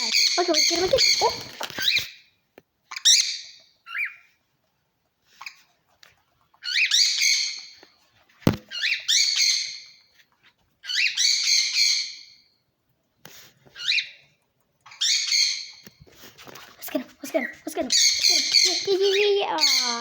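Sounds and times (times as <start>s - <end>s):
sharp knock: 8.5s - 8.7s.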